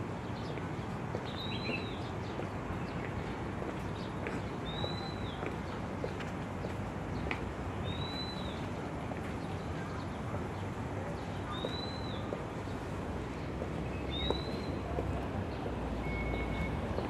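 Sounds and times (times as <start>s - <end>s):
bird whistled call: 16.0s - 16.8s.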